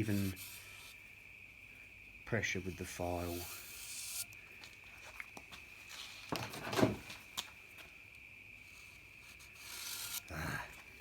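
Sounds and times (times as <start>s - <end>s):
marker scraping on steel: 0.0s - 1.0s, 2.8s - 4.3s, 8.7s - 10.3s.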